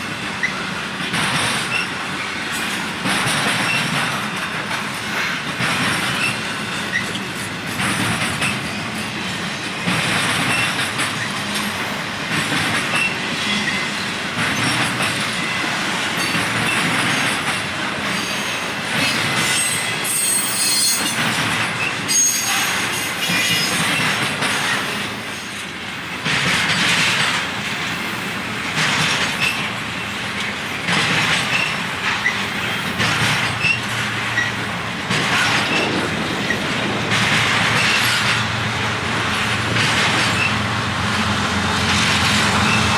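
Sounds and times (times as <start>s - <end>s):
freight train cars rolling: 0.0s - 42.9s
wheels clacking over rail joints: 0.0s - 42.9s
high wheel squeals: 18.1s - 24.1s.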